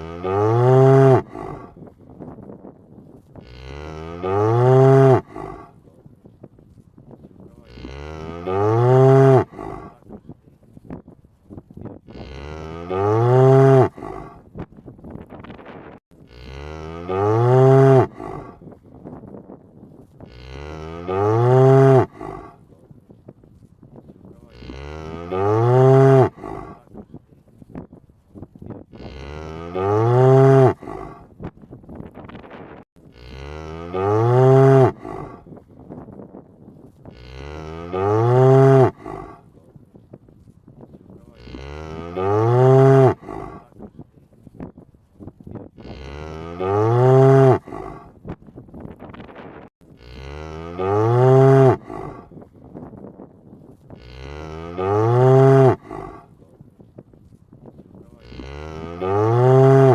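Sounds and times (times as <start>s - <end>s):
cow mooing: 0.0s - 1.8s, 3.4s - 5.8s, 7.6s - 10.0s, 12.1s - 14.4s, 16.2s - 18.7s, 20.2s - 22.6s, 24.4s - 26.8s, 28.9s - 31.3s, 33.1s - 35.5s, 37.1s - 39.4s, 41.3s - 43.7s, 45.8s - 48.1s, 50.0s - 52.3s, 53.9s - 56.3s, 58.1s - 59.9s.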